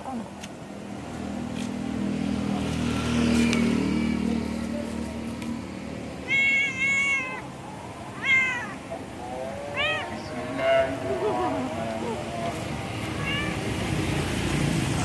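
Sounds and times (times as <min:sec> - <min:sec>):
cat meowing: 0:06.2 - 0:07.5, 0:08.1 - 0:08.8, 0:09.7 - 0:10.3, 0:13.0 - 0:13.8.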